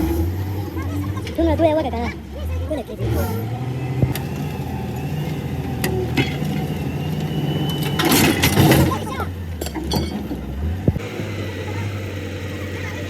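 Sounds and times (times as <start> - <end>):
engine idling: 0.0 - 13.0
metallic clatter: 4.2 - 10.5.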